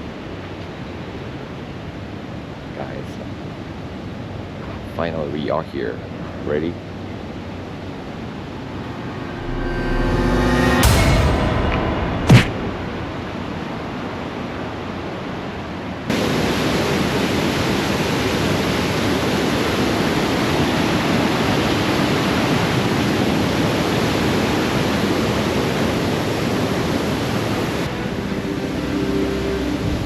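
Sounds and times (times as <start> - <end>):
waterfall rushing: 16.1 - 30.0.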